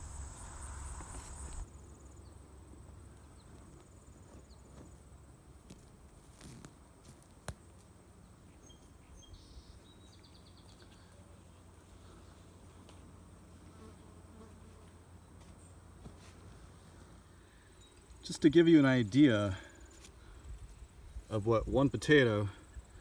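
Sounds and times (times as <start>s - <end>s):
high insect trill: 0.0s - 2.2s.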